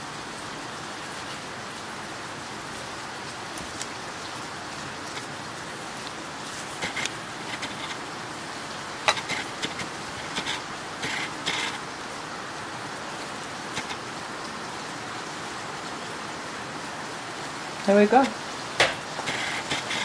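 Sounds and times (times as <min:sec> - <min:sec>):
heavy rain: 0:00.0 - 0:20.0
kitchen utensils clicking: 0:09.0 - 0:11.8.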